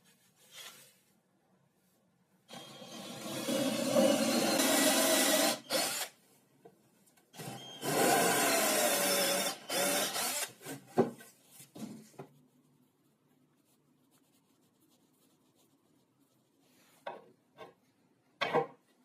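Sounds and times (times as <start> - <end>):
power tool on wood: 7.4 - 10.8.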